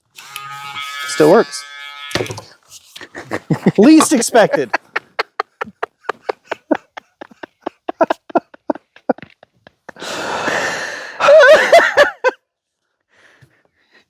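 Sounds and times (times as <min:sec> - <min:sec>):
person laughing hard: 0:03.0 - 0:10.6, 0:11.2 - 0:12.4
wheezing breath: 0:10.0 - 0:11.4.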